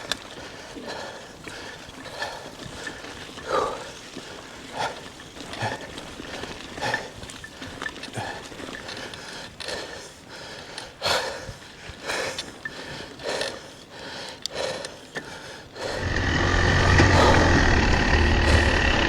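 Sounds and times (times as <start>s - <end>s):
loud engine running: 16.0s - 19.0s.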